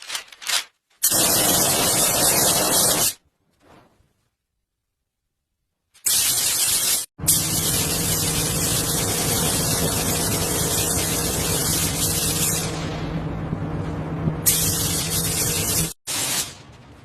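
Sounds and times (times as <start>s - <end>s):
low hum: 12.0s - 15.8s.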